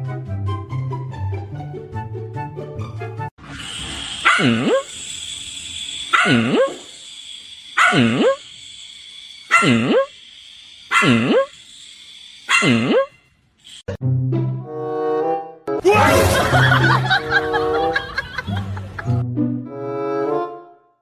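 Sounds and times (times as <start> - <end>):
dog barking: 4.2 - 4.9, 6.1 - 6.8, 7.8 - 8.4, 9.5 - 10.0, 10.9 - 11.5, 12.5 - 13.1.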